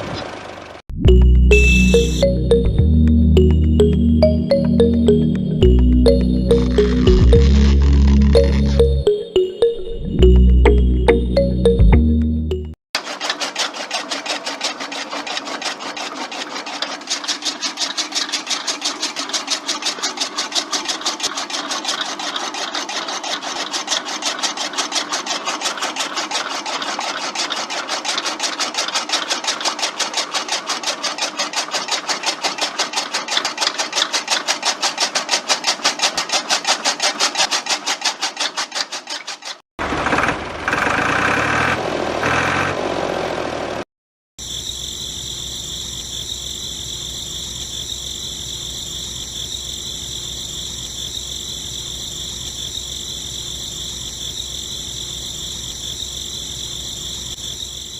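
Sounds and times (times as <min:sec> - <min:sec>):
rough machine noise: 0:03.4 - 0:09.2, 0:13.0 - 0:43.8.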